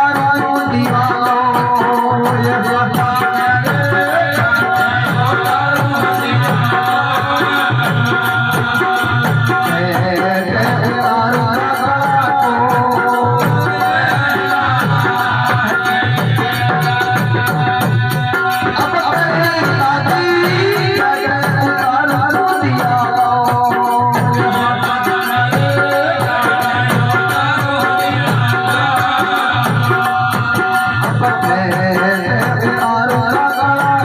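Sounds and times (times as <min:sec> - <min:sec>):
steady drum beat: 0:00.0 - 0:34.0.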